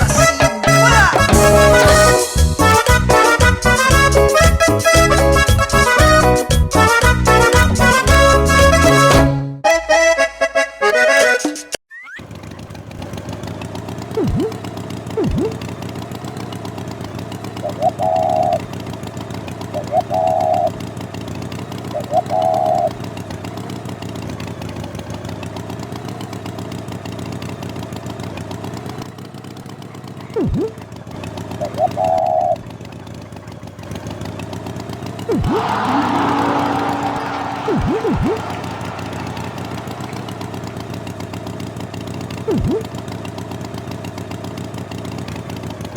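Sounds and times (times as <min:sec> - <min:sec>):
engine running: 0:00.0 - 0:09.3, 0:12.2 - 0:45.9
quick falling swoops: 0:14.2 - 0:14.6, 0:15.2 - 0:15.6, 0:35.3 - 0:40.6, 0:42.5 - 0:42.8.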